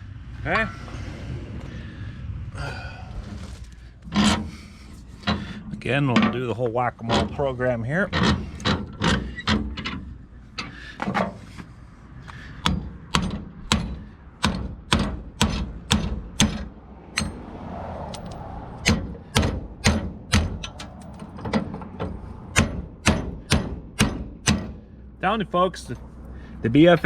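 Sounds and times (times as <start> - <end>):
hammer striking metal: 12.6 - 17.5, 18.2 - 24.8.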